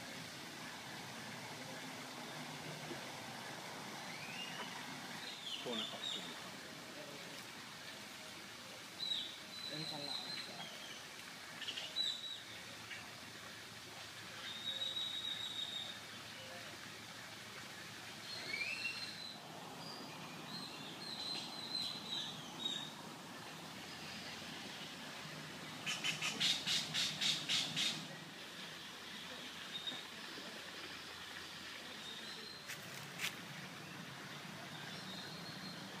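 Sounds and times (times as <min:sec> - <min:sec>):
steady outdoor hiss: 0:00.0 - 0:36.0
birds whistling: 0:04.1 - 0:06.2, 0:18.3 - 0:22.9.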